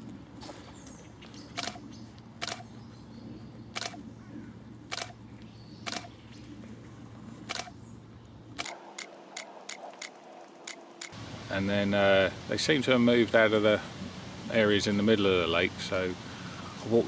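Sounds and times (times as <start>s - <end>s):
steady low hum: 0.0s - 17.0s
camera shutter clicking: 1.6s - 1.8s, 2.4s - 2.7s, 3.8s - 4.0s, 4.9s - 5.2s, 5.9s - 6.1s, 7.5s - 7.7s, 8.6s - 11.1s.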